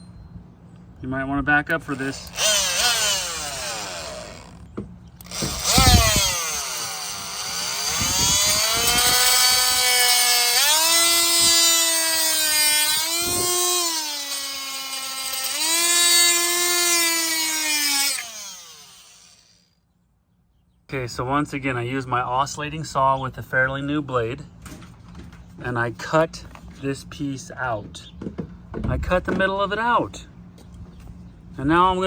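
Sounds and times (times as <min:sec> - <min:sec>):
oscillating multi-tool cutting plastic: 0:01.9 - 0:19.7.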